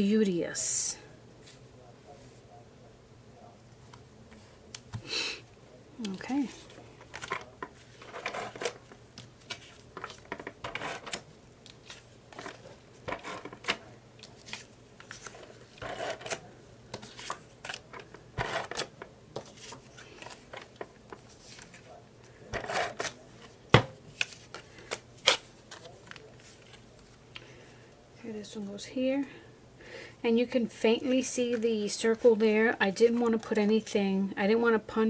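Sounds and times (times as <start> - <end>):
paper rustling and shuffling: 6.0 - 27.7, 31.1 - 32.4.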